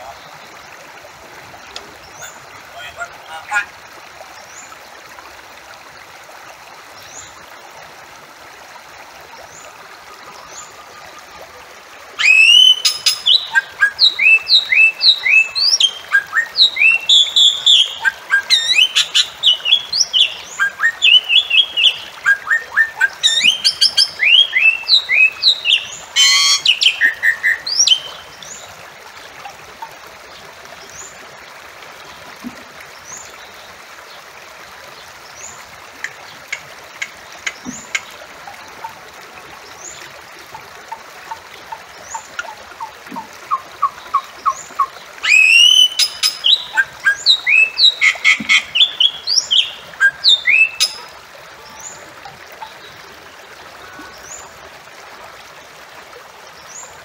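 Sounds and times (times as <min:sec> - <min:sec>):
myna whistling call: 0:12.2 - 0:28.1, 0:45.2 - 0:51.0.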